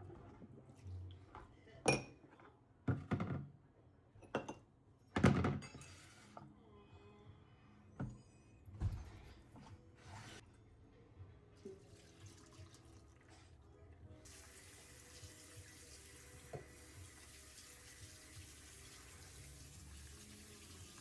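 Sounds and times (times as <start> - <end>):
tap water running into sink: 14.3 - 21.0.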